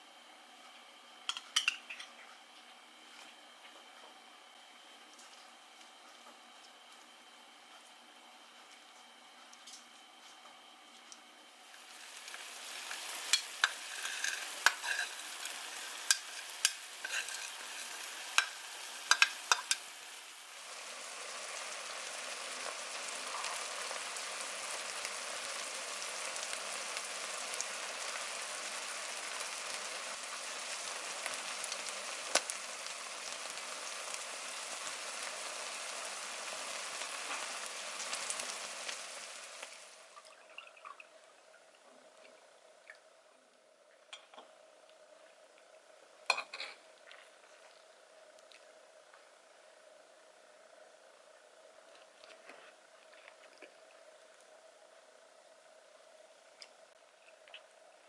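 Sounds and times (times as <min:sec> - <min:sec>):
food sizzling in frying pan: 0:11.6 - 0:40.2, 0:46.2 - 0:46.9
utensil clacking against pan: 0:18.4 - 0:19.8.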